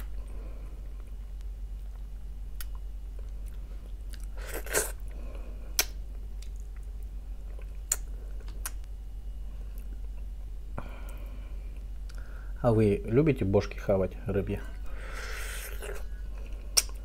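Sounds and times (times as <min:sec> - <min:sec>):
steady low hum: 0:00.0 - 0:17.0
chewing and wet mouth smacks: 0:01.8 - 0:05.0, 0:05.8 - 0:08.9, 0:15.6 - 0:17.0
sharp mouth clicks: 0:05.8 - 0:06.6, 0:07.9 - 0:08.9.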